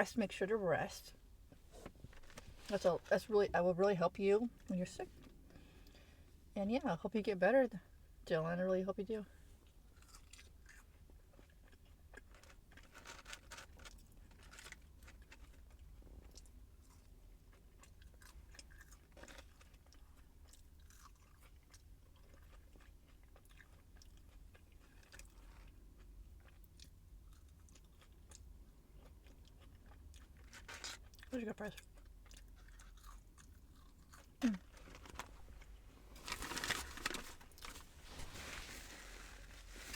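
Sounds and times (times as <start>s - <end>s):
person chewing food: 9.6s - 35.8s.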